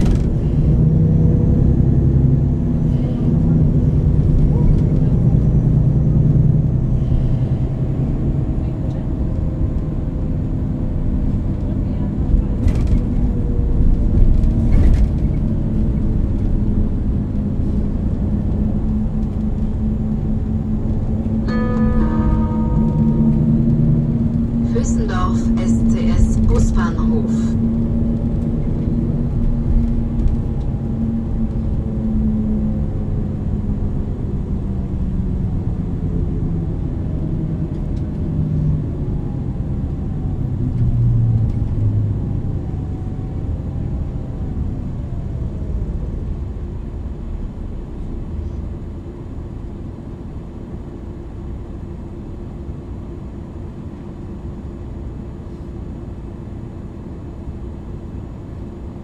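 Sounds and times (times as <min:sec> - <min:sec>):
bus engine running: 0:00.0 - 0:59.0
faint steady hum: 0:20.1 - 0:28.9.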